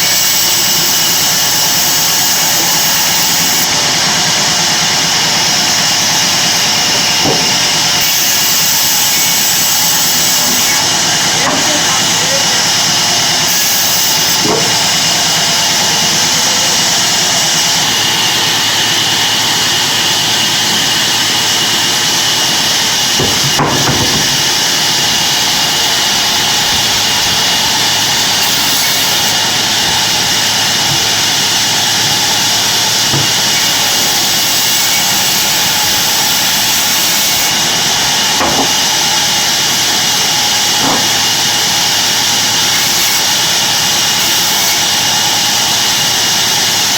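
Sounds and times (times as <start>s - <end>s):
bandsaw hissing: 0.0s - 46.9s
sharp knock: 23.2s - 24.4s.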